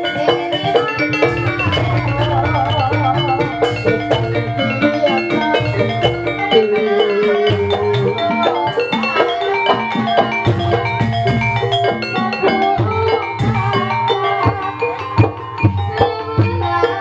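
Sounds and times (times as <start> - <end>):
hand drum strokes: 0.0 - 9.2
gamelan percussion melodic patterns: 0.0 - 17.0.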